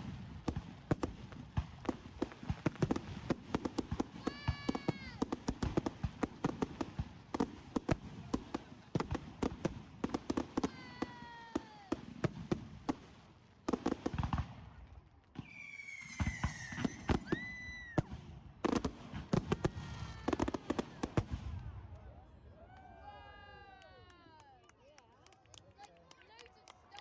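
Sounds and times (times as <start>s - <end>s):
whistling firework: 0.0s - 12.6s, 15.3s - 22.3s
fireworks cracking and banging: 0.0s - 22.2s.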